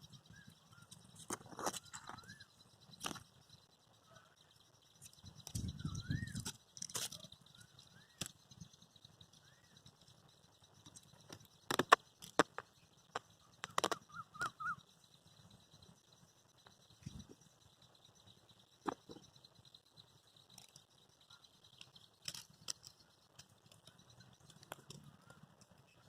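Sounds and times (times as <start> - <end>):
bird chirping: 0.0 - 26.0
sharp clicks: 10.9 - 14.6.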